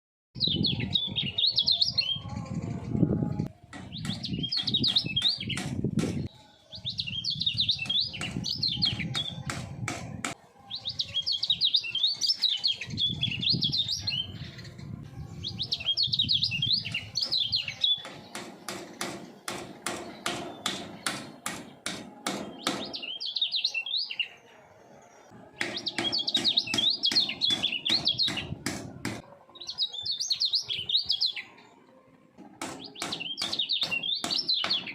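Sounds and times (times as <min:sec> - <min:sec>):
bird twittering: 0:25.7 - 0:28.6, 0:32.8 - 0:34.9.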